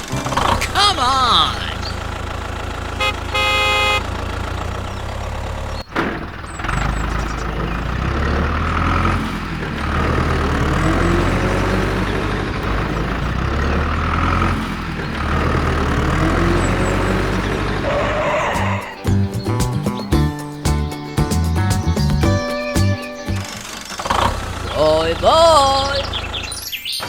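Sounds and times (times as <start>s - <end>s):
tractor engine running: 0.0s - 26.7s
short horn toot: 3.0s - 4.1s.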